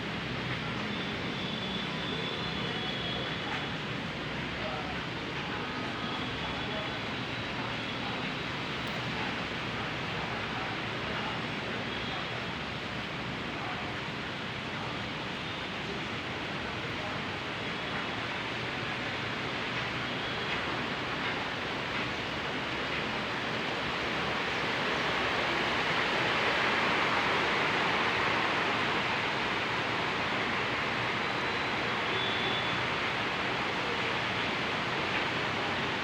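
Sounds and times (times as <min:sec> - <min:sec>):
heavy rain hissing: 0:22.4 - 0:36.0.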